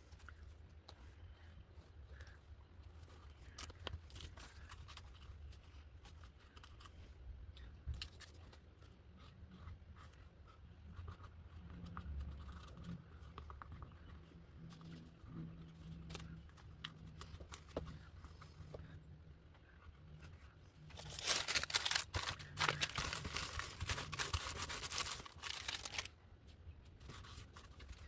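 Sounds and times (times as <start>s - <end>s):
paper rustling: 19.7s - 26.1s, 26.9s - 28.0s.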